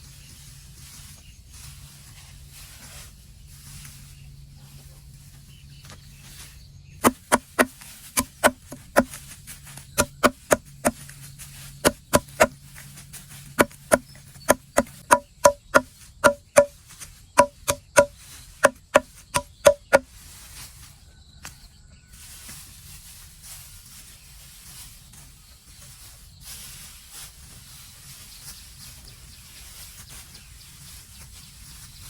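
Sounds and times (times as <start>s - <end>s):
tool striking wood: 7.0s - 9.2s, 10.0s - 11.0s, 11.8s - 12.6s, 13.6s - 16.8s, 17.4s - 20.0s.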